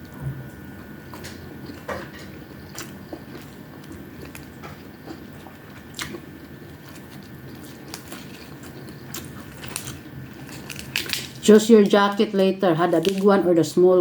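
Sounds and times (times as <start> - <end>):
person chewing food: 0.8 - 11.4.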